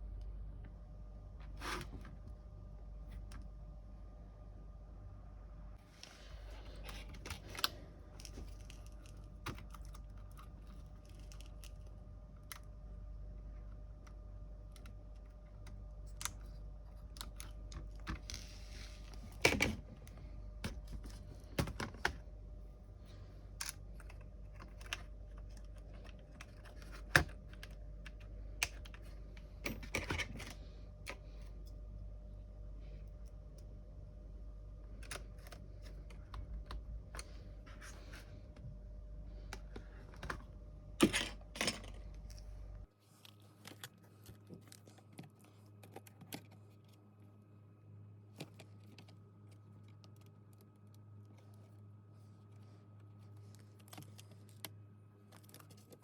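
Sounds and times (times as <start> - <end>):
low hum: 0.0 - 42.9.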